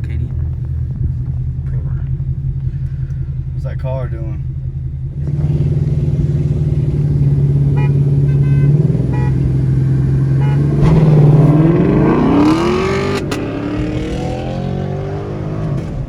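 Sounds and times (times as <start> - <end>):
car engine accelerating: 4.6 - 16.0.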